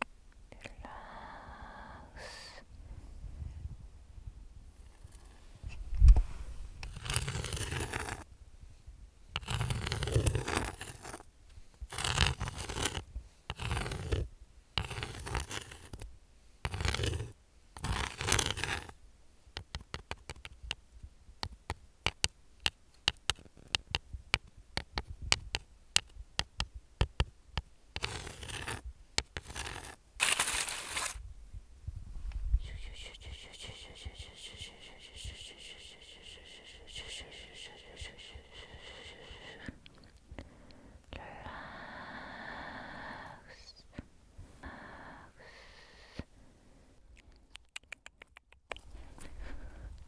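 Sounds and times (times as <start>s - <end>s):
fingernails scratching: 6.8s - 8.2s, 9.4s - 11.2s, 11.9s - 16.1s, 16.7s - 19.0s, 23.1s - 24.0s, 28.0s - 31.2s.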